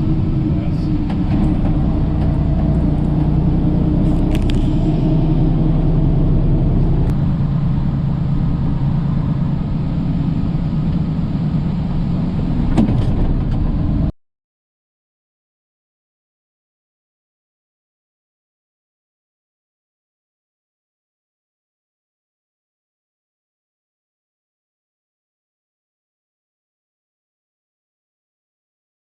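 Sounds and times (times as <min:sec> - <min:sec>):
vehicle road and engine noise: 0:00.0 - 0:14.2.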